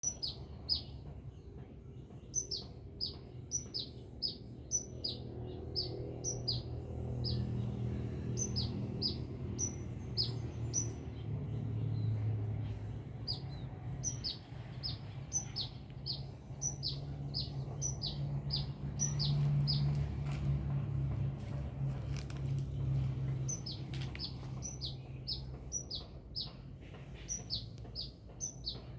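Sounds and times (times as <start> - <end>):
bird singing rapid high chirps: 0.0 - 1.0, 1.9 - 20.2, 22.7 - 28.9.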